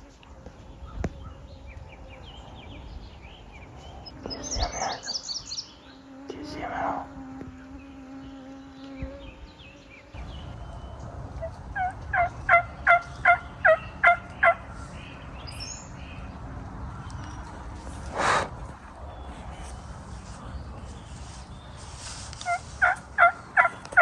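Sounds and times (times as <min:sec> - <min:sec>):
turkey yelping: 0:11.8 - 0:14.6.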